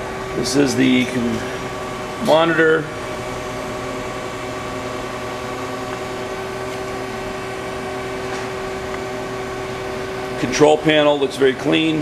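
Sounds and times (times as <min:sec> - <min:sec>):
lathe machine humming: 0:00.0 - 0:12.0.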